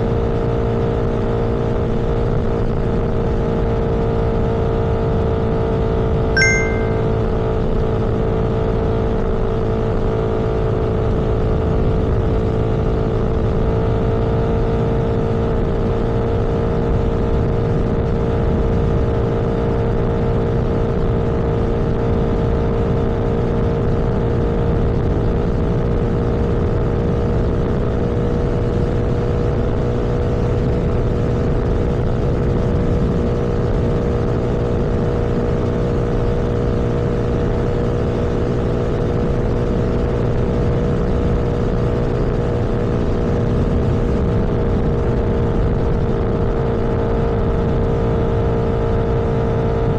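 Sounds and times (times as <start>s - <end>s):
low road rumble: 20.3s - 49.9s.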